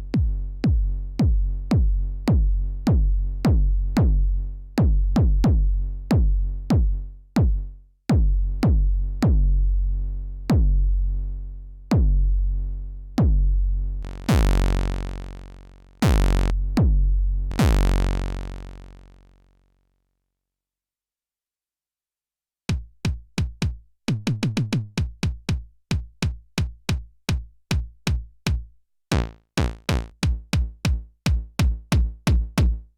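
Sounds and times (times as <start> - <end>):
synthesized kick drums: 0.0 - 9.6, 10.5 - 10.8, 11.9 - 12.3, 13.2 - 19.1, 22.7 - 32.9.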